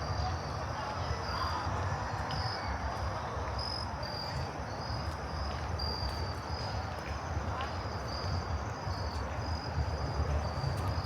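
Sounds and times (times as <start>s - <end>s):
low city rumble: 0.0s - 11.0s
crickets chirping: 3.6s - 11.0s.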